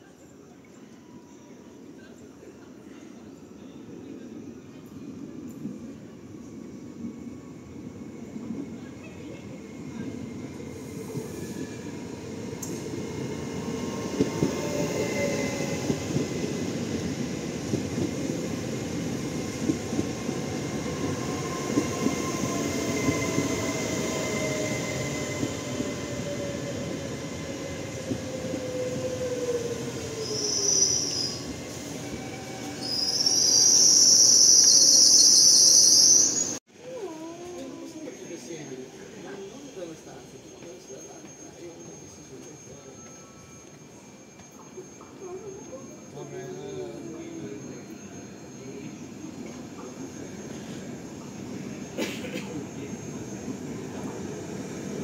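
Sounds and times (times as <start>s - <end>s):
high brake squeal: 21.3s - 36.6s, 38.1s - 55.0s.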